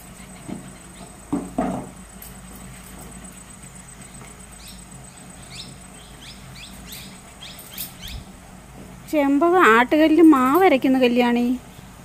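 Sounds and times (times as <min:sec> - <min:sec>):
low steady hum: 0:00.0 - 0:12.0
small bird chirping: 0:02.6 - 0:08.3.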